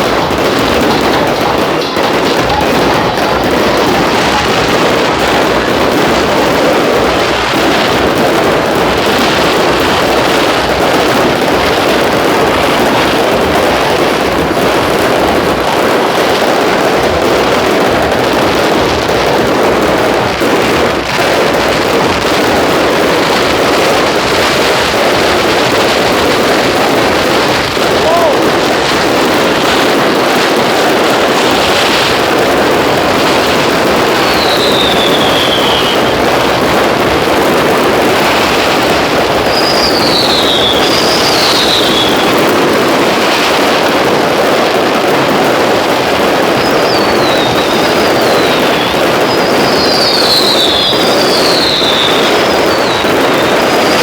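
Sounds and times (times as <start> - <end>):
fireworks barrage: 0.0 - 54.0.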